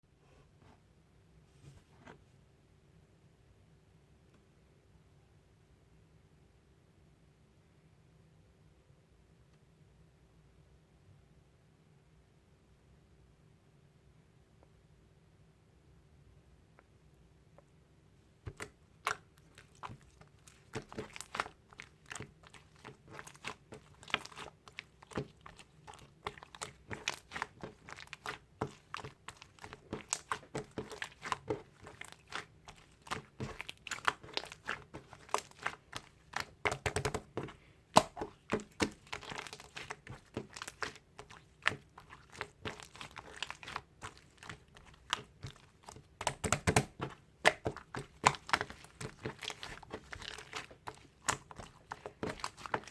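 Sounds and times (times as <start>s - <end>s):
slime being squished by hand: 18.5s - 52.9s.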